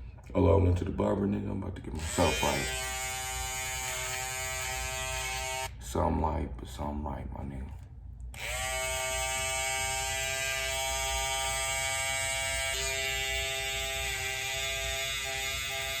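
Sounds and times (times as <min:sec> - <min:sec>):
electric hair clippers buzzing: 0:02.0 - 0:05.7, 0:08.3 - 0:16.0.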